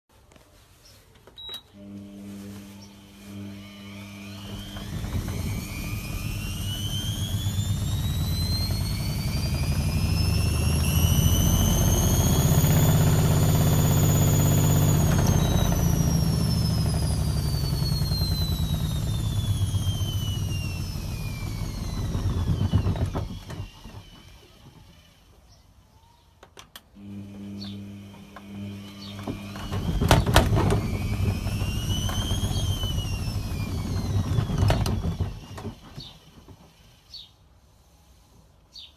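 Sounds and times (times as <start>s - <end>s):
washing machine motor whine: 1.5s - 25.5s, 27.0s - 37.2s
drum low rumble: 3.4s - 23.7s, 28.5s - 35.8s.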